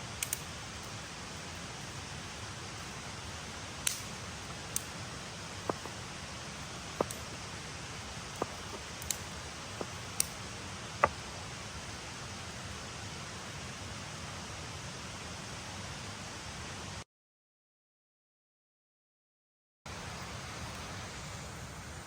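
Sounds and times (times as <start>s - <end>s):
steady hiss: 0.0s - 17.0s, 19.9s - 22.0s
sharp clicks or pops: 3.8s - 4.9s.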